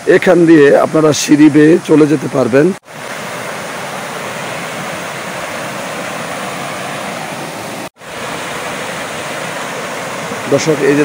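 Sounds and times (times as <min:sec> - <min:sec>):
water falling from a cascade: 0:02.9 - 0:11.0.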